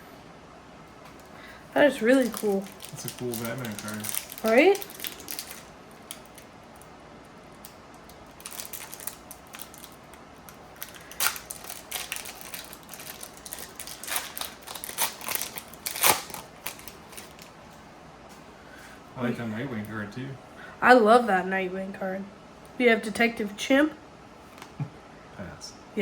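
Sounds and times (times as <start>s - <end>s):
trading cards clicking and rustling: 10.8s - 17.5s.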